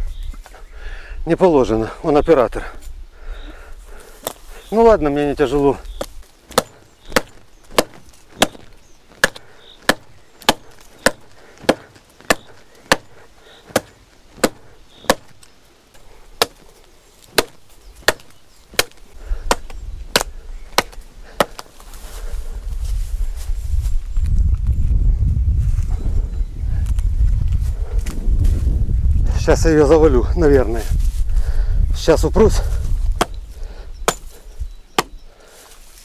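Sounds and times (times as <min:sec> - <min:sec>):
axe chopping tree trunk: 0:06.0 - 0:21.8, 0:33.1 - 0:33.4, 0:34.0 - 0:35.2
low rumbling rustle: 0:21.8 - 0:29.7, 0:30.8 - 0:31.6.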